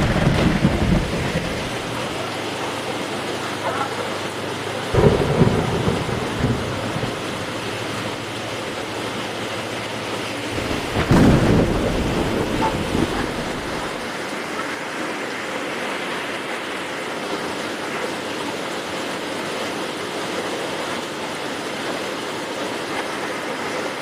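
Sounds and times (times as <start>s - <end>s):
thunder rumbling: 0.0s - 4.2s, 4.8s - 14.1s
heavy rain falling: 0.0s - 24.0s.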